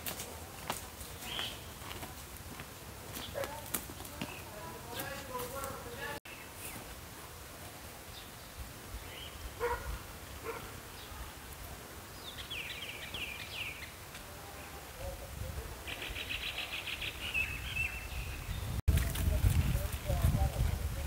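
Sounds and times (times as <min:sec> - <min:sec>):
small birds chirping: 0:01.0 - 0:02.1, 0:03.1 - 0:07.0, 0:08.0 - 0:11.4, 0:12.0 - 0:14.2, 0:15.8 - 0:18.8.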